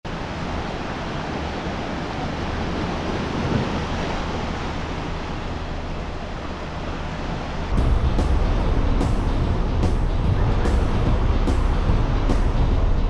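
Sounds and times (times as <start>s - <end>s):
sea waves washing onto shore: 0.1s - 8.5s.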